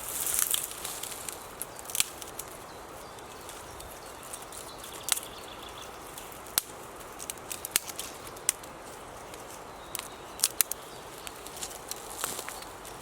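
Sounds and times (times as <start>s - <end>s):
faint steady hiss: 0.0s - 13.0s
sharp snaps: 5.0s - 5.3s, 6.4s - 8.7s, 9.3s - 12.7s.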